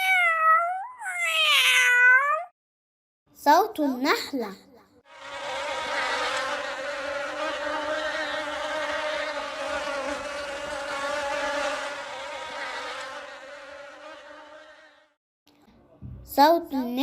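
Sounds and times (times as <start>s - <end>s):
bee buzzing: 5.1s - 15.2s.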